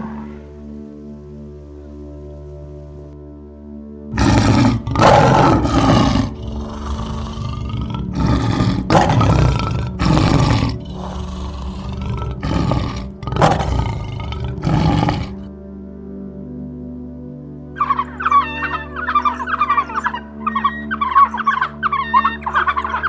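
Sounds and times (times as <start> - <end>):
big cat roaring: 0.0 - 0.6, 4.1 - 15.5
soft background music: 0.0 - 23.0.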